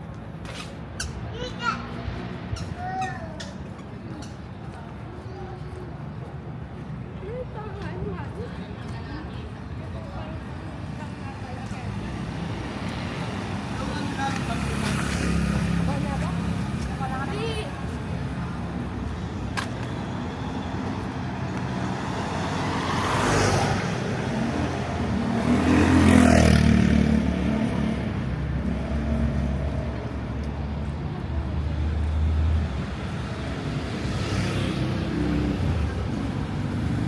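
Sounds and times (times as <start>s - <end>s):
vehicles passing close by: 0.0s - 37.0s.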